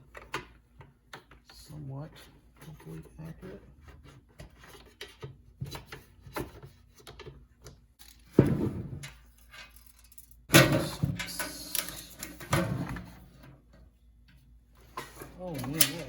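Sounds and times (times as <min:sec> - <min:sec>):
metal can clanks and scrapes: 0:10.5 - 0:13.6.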